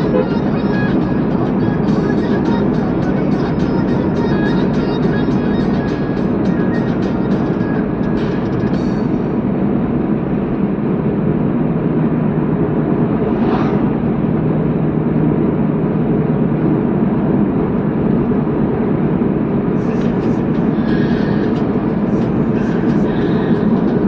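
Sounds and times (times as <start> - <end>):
car road and engine noise: 0.0 - 24.0
brief swish: 13.2 - 14.1.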